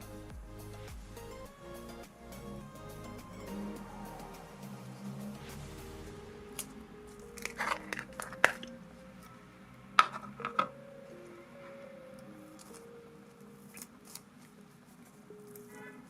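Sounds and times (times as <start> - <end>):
faint background music: 0.0 - 16.0
slime clicking and crackling: 13.7 - 14.6.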